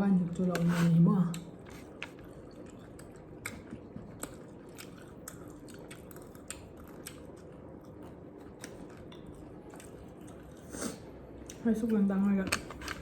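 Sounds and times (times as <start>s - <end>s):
chewing and biting food: 1.4s - 10.8s.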